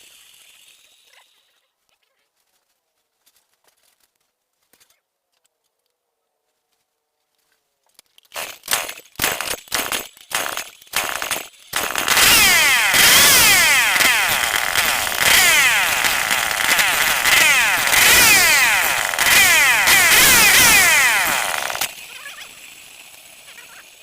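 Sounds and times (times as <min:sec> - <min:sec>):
chainsaw engine revving: 0:08.3 - 0:24.0.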